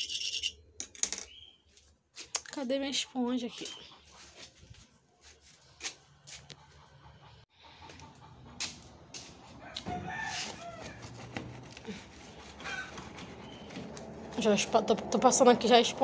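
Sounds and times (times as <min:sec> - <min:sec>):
bird calling: 0:12.2 - 0:14.0.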